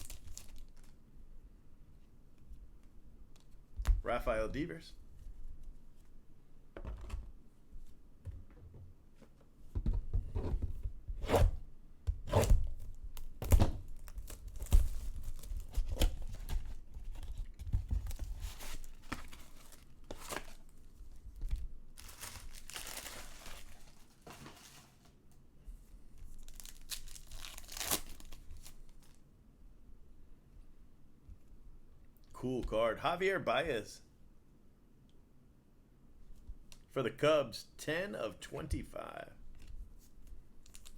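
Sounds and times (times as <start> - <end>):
packaging torn and crinkled: 0.0 - 1.0, 13.3 - 17.4, 22.0 - 24.7, 26.3 - 29.2, 40.6 - 40.9.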